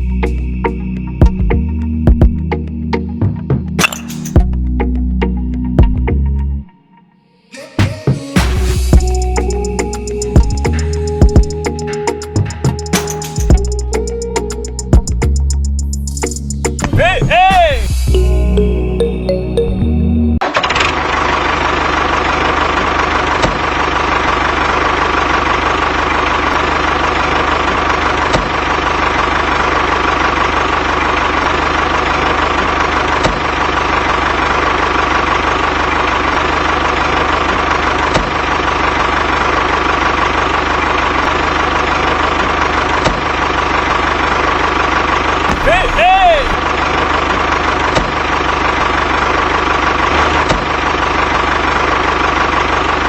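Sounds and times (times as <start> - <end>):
tractor engine idling: 8.7 - 17.2, 20.4 - 53.0.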